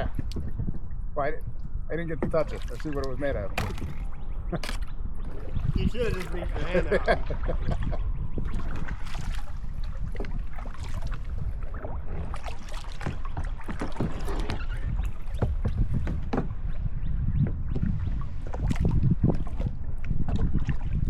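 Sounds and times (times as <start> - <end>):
steady low rumble: 0.0 - 13.4
paddle splashing in water: 2.2 - 16.6, 18.0 - 21.0.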